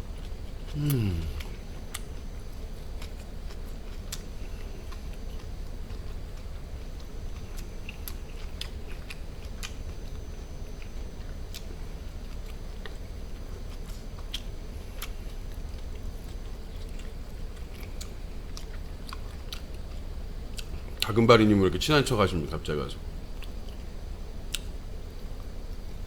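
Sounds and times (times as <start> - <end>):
low hum: 0.0 - 17.6
wet chewing mouth sounds: 0.2 - 19.8.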